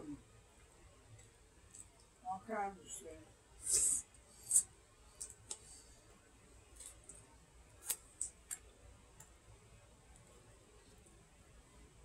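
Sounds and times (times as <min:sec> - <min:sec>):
faint hiss: 0:02.2 - 0:06.3.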